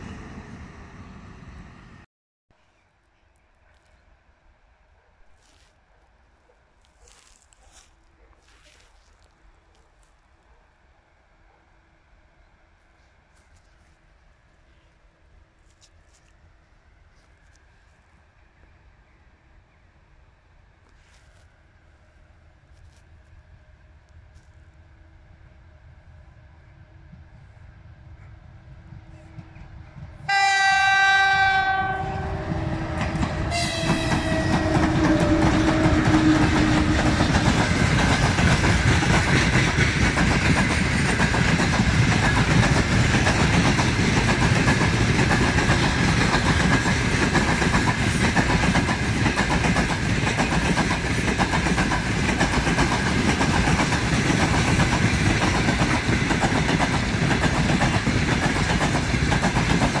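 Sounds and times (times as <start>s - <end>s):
locomotive horn: 30.3s - 37.0s
wheels rumbling on rails: 31.8s - 60.0s.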